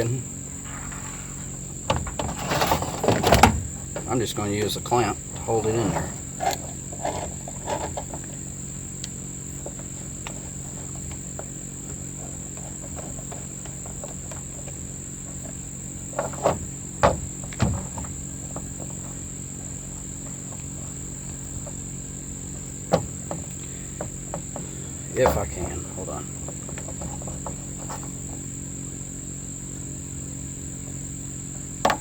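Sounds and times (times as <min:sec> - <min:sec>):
crickets chirping: 0:00.0 - 0:32.0.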